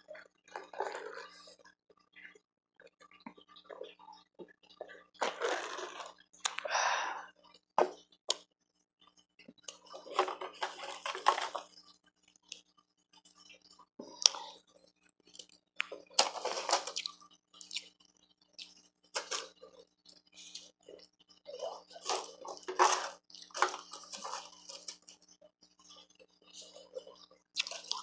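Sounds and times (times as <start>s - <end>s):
ice being chewed: 0.1s - 1.7s, 4.7s - 6.7s, 9.4s - 28.0s.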